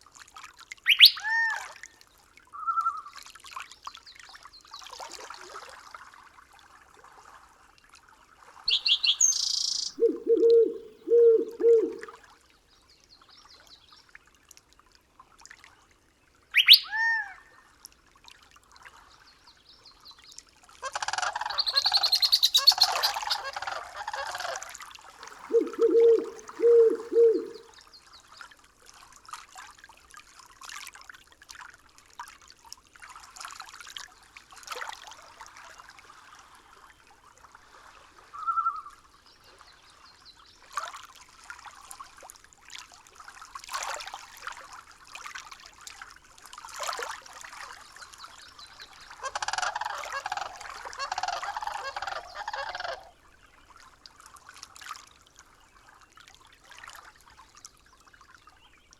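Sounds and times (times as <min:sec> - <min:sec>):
bird chirp: 0:00.9 - 0:01.2, 0:08.7 - 0:12.1, 0:16.6 - 0:16.9, 0:21.4 - 0:23.5, 0:25.5 - 0:27.6
busy bird calling: 0:00.9 - 0:01.5, 0:08.7 - 0:12.1, 0:16.6 - 0:17.1, 0:20.9 - 0:24.7, 0:25.5 - 0:27.6, 0:49.2 - 0:53.1
low honk-like bird calls: 0:08.7 - 0:12.1, 0:20.9 - 0:24.7, 0:49.1 - 0:53.1.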